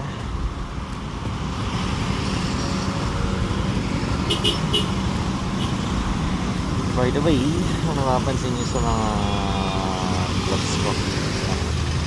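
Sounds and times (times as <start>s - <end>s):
motorcycle engine running: 0.2s - 7.9s.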